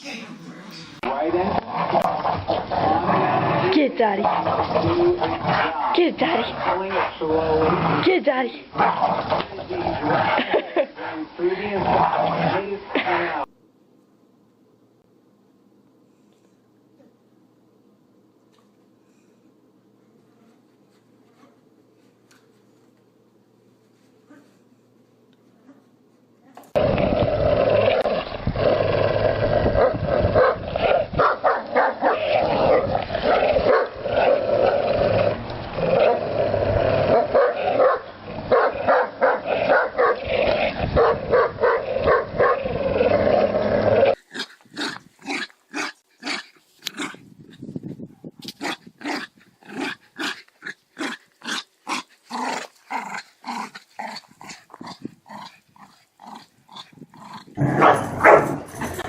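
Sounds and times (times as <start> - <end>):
dog growling: 1.0 - 12.8, 26.7 - 31.2, 31.9 - 38.8, 39.4 - 47.3, 48.6 - 59.0
dog barking: 31.2 - 32.2, 33.7 - 33.9, 37.2 - 40.2, 41.0 - 42.6, 57.8 - 58.6.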